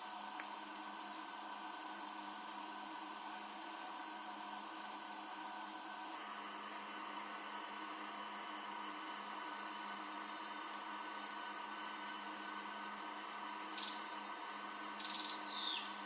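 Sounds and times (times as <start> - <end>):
insect chorus: 0.0 - 16.0
low hum and hiss: 0.0 - 16.0.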